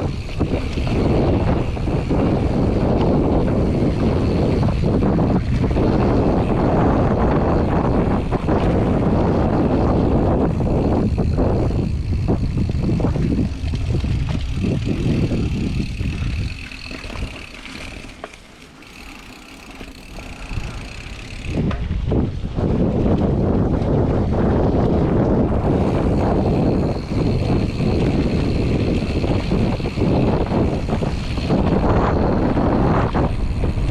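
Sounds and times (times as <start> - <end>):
wind buffeting microphone: 0.0 - 18.2, 18.9 - 33.9
bike tyres on dirt trail: 0.0 - 33.9.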